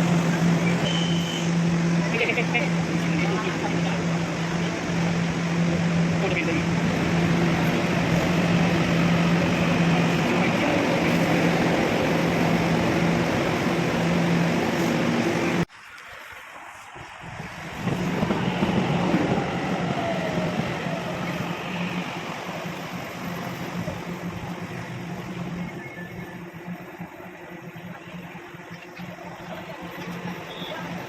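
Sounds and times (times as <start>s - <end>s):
heavy rain pouring: 1.8s - 23.9s.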